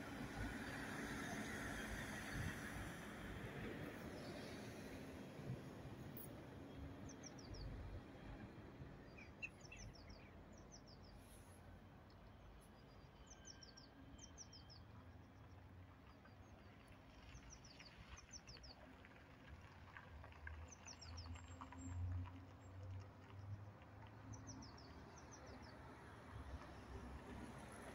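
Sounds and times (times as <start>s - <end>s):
small bird chirps: 9.2s - 11.1s.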